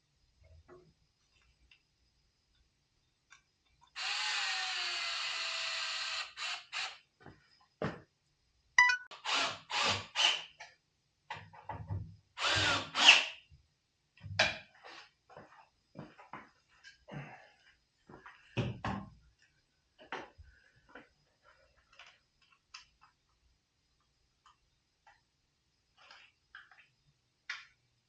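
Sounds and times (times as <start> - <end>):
cordless drill running: 4.0 - 7.0, 9.2 - 10.4, 12.4 - 13.3.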